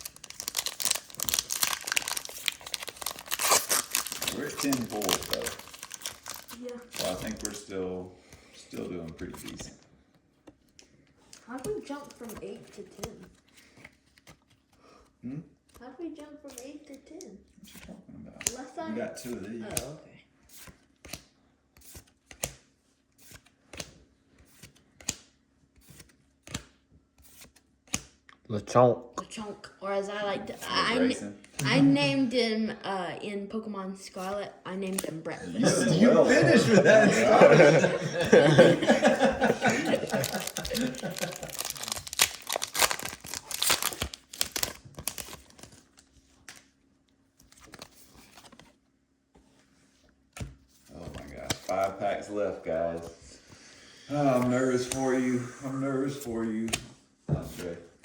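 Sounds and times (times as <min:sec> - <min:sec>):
foil wrapper tearing and crinkling: 0:00.0 - 0:07.6, 0:39.1 - 0:46.7
trading cards flipped by hand: 0:10.4 - 0:14.8, 0:19.2 - 0:19.9, 0:20.5 - 0:28.4, 0:34.2 - 0:35.2, 0:40.2 - 0:46.8, 0:47.4 - 0:48.8, 0:50.3 - 0:52.0, 0:54.2 - 0:55.2, 0:56.4 - 0:57.8.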